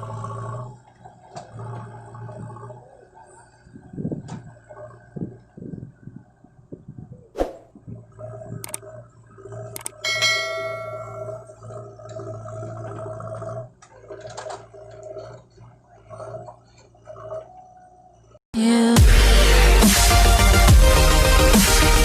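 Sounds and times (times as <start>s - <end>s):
backhoe engine and hydraulics whine: 0.0s - 18.4s
sharp metallic clang: 9.9s - 11.4s.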